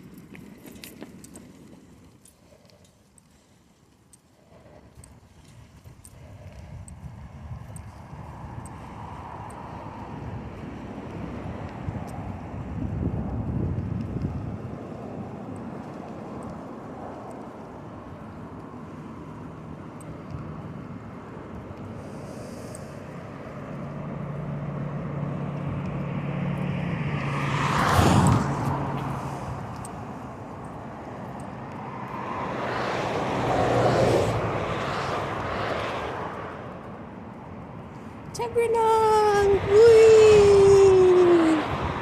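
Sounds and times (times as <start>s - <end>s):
road and wind noise: 0.0s - 42.0s
vehicles passing: 0.0s - 42.0s.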